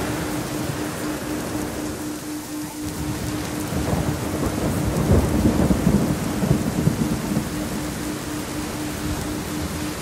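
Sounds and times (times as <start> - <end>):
heavy rain: 0.0 - 10.0
low pulsing tone: 0.0 - 10.0
low thunder rumble: 0.0 - 10.0.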